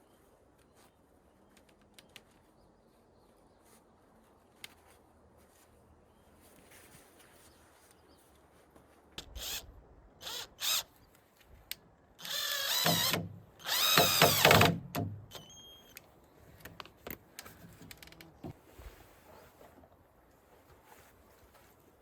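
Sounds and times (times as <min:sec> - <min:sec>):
power drill running: 0:12.2 - 0:14.8.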